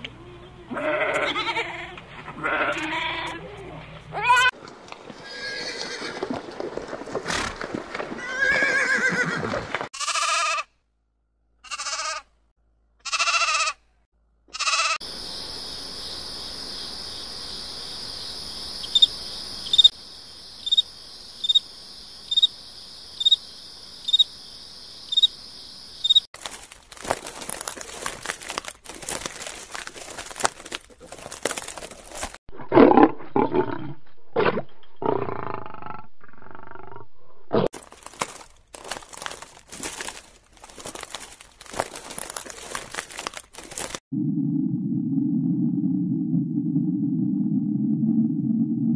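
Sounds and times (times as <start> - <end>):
horses whinnying: 5.2 - 6.4, 7.3 - 10.6
crackling noise: 26.0 - 32.8, 35.6 - 48.9.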